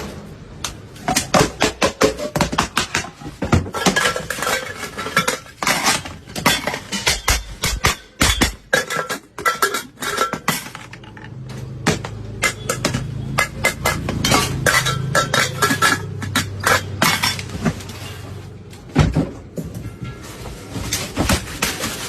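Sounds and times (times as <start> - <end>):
metal tapping and clinking: 3.7 - 17.7.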